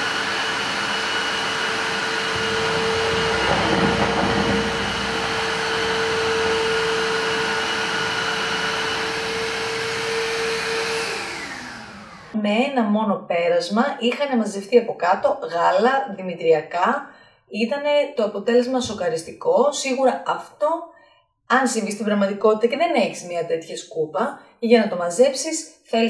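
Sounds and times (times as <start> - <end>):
vacuum mop motor whine: 0.0 - 12.4.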